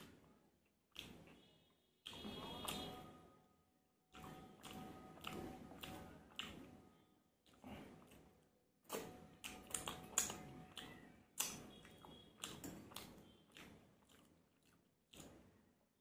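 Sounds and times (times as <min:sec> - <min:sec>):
chewing food: 0:00.0 - 0:03.2, 0:04.1 - 0:16.0
wet smacking mouth clicks: 0:00.9 - 0:01.4, 0:07.4 - 0:15.4.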